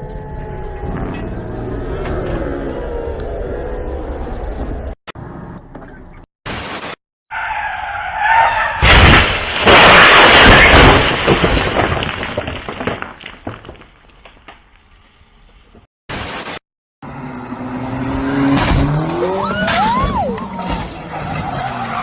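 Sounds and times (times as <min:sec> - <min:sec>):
high wavering tire squeal: 0:07.3 - 0:08.8, 0:18.9 - 0:22.0
car crash impact: 0:08.8 - 0:13.9
crunching and scattering debris: 0:08.8 - 0:14.9.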